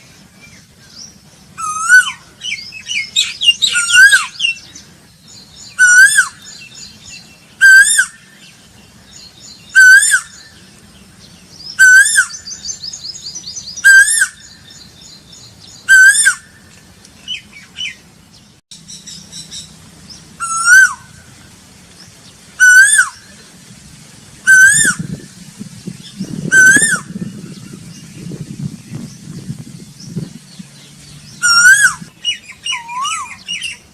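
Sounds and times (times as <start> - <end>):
low rumbling noise: 0.0 - 33.9
bird calling swooping note: 20.4 - 21.3, 24.4 - 28.2, 30.0 - 33.9.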